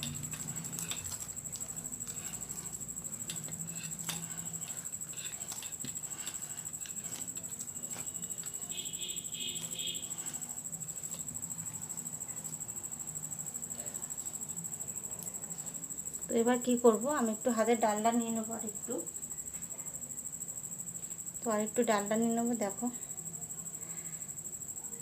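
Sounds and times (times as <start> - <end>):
hands kneading dough: 0.0 - 17.3.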